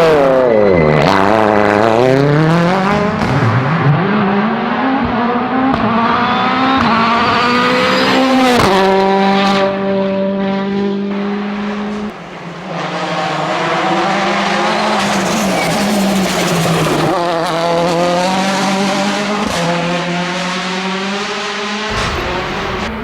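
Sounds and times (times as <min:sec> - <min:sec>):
rally car engine revving: 0:00.0 - 0:23.0
rushing noise: 0:21.9 - 0:23.0.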